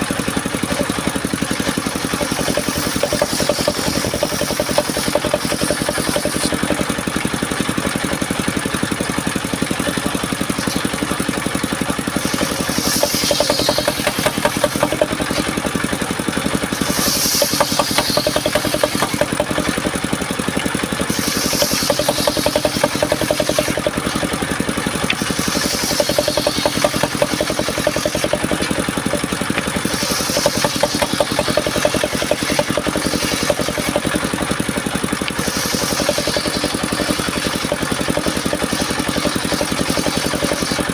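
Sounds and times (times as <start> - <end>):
sawmill engine running: 0.0 - 40.9
brief high hiss: 16.8 - 18.2.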